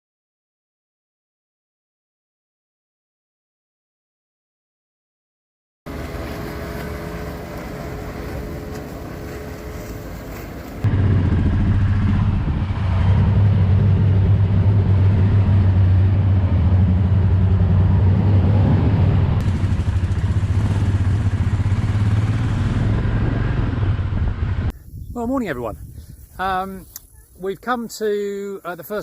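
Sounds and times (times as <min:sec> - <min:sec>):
motorcycle engine cruising: 0:05.9 - 0:24.7.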